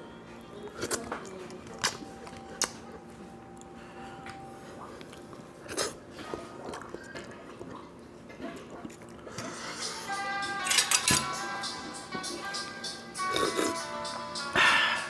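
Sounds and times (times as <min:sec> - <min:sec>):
chewing and mouth sounds: 0:00.7 - 0:10.0, 0:13.2 - 0:13.8.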